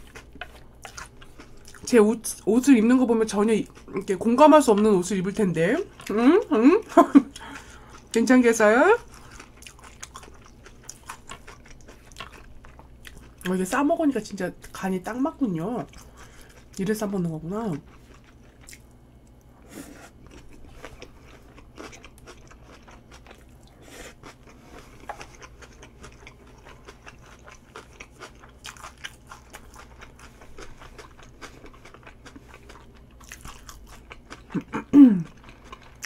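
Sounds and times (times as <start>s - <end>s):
chewing crunchy food: 0.0s - 2.4s, 3.3s - 6.1s, 7.0s - 8.4s, 9.0s - 13.6s, 15.8s - 36.0s
person humming: 34.6s - 35.4s.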